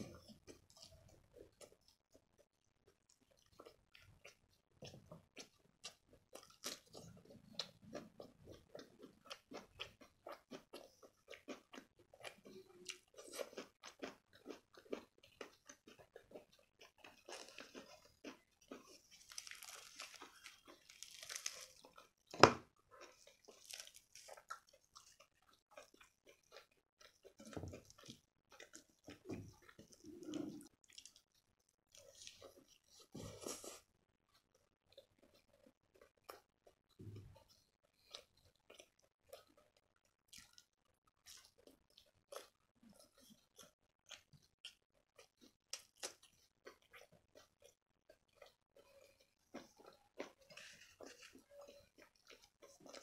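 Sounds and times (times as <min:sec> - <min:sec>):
close-miked chewing: 0:00.0 - 0:53.0
bread being torn: 0:19.2 - 0:22.6, 0:23.4 - 0:24.6.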